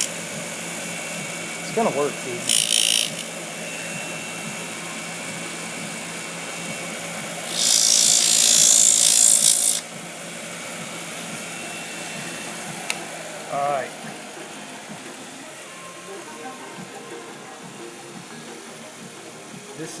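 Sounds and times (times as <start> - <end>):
small power tool running: 0.0 - 20.0
tool grinding plastic bottle: 7.5 - 9.9.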